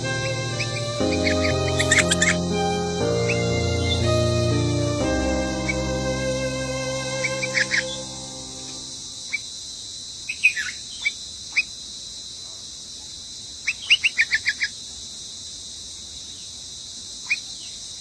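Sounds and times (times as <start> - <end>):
steady high hiss: 0.0 - 10.2.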